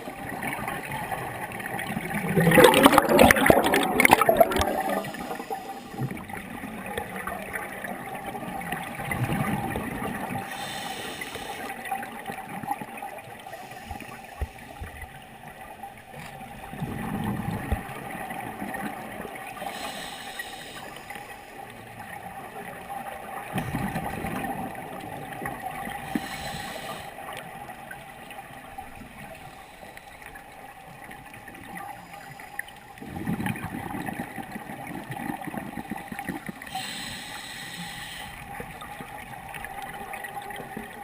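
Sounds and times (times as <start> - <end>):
bubbles gurgling underwater: 0.0 - 10.5, 16.4 - 19.7, 22.3 - 26.4, 33.0 - 36.8
diver breathing through regulator: 10.4 - 11.8, 13.4 - 14.9, 19.6 - 21.7, 26.0 - 27.2, 29.3 - 30.4, 36.6 - 38.5.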